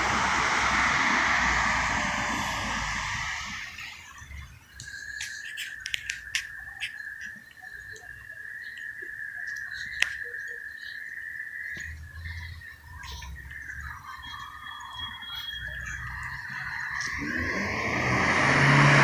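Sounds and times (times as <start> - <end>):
car passing: 0.0 - 6.2, 11.5 - 19.0
high thin whine: 0.0 - 6.8
sharp clicks: 4.4 - 8.1.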